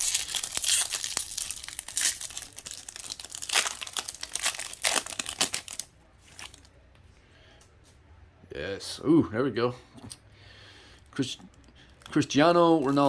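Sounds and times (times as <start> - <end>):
card pack wrapper crinkling: 0.0 - 6.7.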